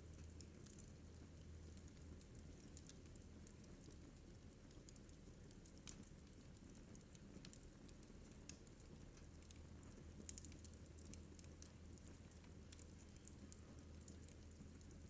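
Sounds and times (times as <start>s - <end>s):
wood fire crackling faintly: 0.0s - 15.0s
low steady hum: 7.9s - 15.0s.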